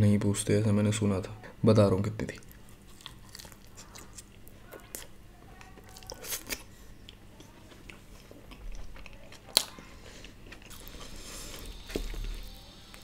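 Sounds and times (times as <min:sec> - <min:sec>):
person chewing food: 0:02.3 - 0:13.0.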